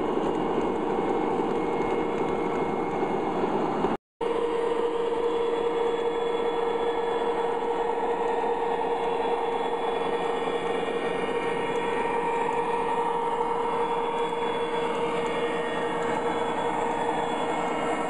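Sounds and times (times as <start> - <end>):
model train electric hum: 0.0 - 18.0
wheels rolling on rail: 6.9 - 18.0.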